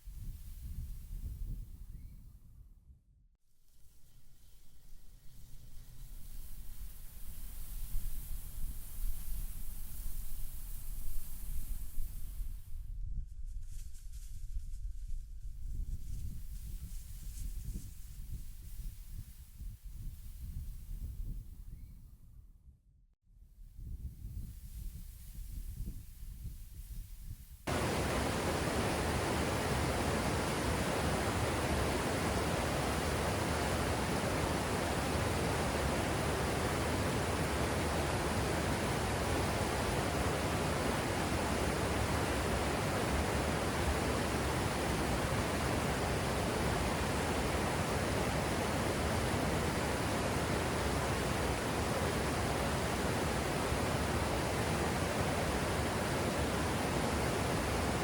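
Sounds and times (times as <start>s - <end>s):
waterfall rushing: 27.7s - 58.0s.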